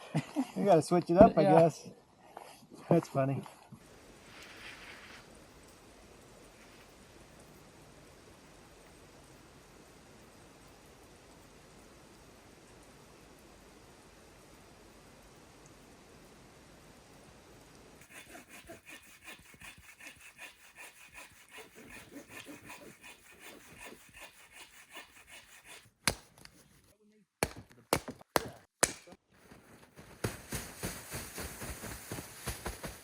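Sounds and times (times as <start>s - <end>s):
hand saw cutting log: 18.0s - 26.2s
sharp knocks: 27.4s - 29.0s.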